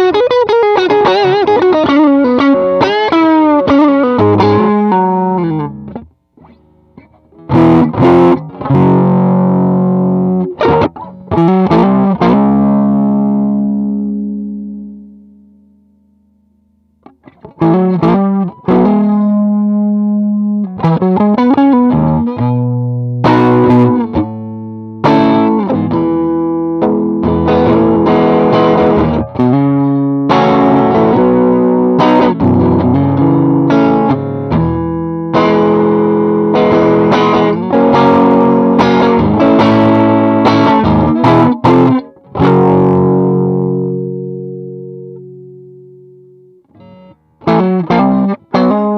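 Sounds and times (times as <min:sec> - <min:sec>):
overdriven electric guitar: 0:00.0 - 0:48.9.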